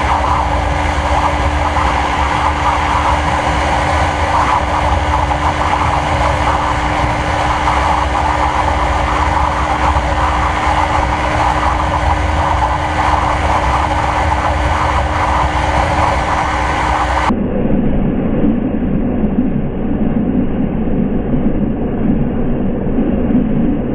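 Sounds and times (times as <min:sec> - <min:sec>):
motorcycle engine droning: 0:00.0 - 0:17.3
rushing noise: 0:00.0 - 0:18.3.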